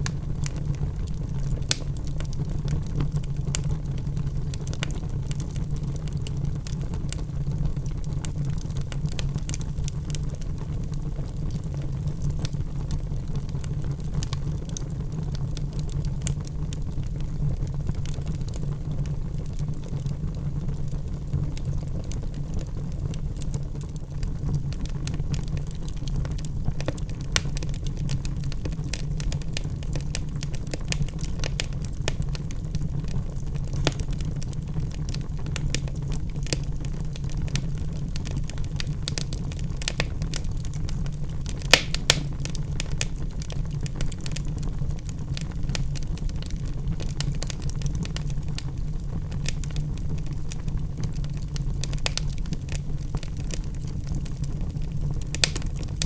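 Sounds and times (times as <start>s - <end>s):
wood crackling and snapping: 0.0s - 3.6s, 24.8s - 48.3s, 49.4s - 56.0s
fire flames rumbling: 0.0s - 56.0s.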